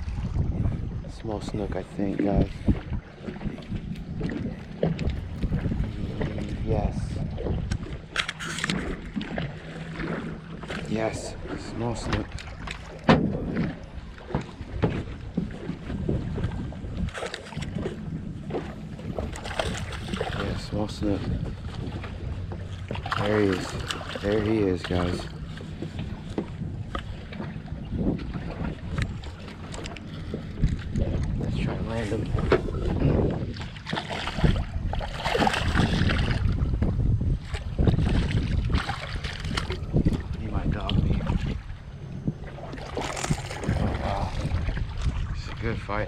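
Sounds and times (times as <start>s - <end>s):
water lapping against boat hull: 0.0s - 46.0s
wind rumble on microphone: 0.0s - 46.0s
hull knocks: 11.9s - 16.6s.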